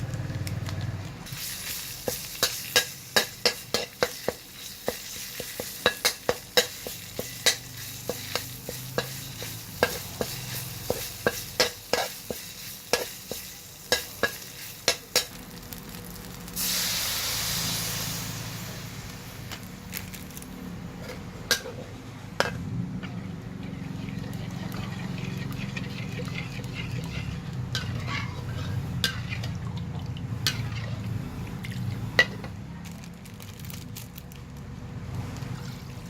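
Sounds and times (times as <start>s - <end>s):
stirring liquid in a pot: 23.6s - 31.9s.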